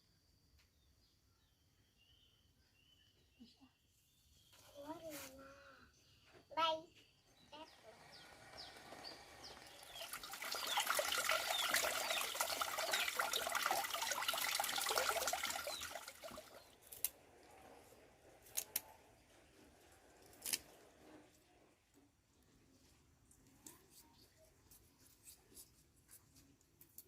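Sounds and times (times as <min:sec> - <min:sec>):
water running and splashing: 0:08.3 - 0:16.8.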